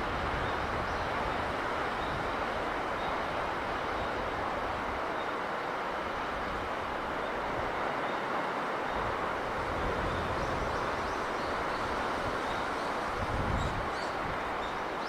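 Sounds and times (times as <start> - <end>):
sea breeze: 0.0 - 15.0
sea wash: 0.0 - 15.0
wind buffeting microphone: 8.9 - 14.8.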